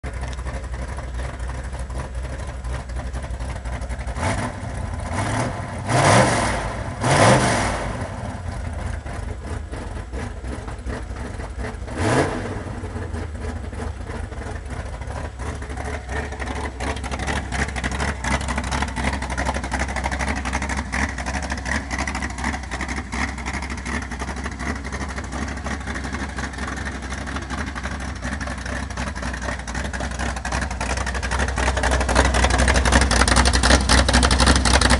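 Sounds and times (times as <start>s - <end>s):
car engine idling with loud rumble: 0.0s - 34.9s
engine revving: 4.1s - 14.0s.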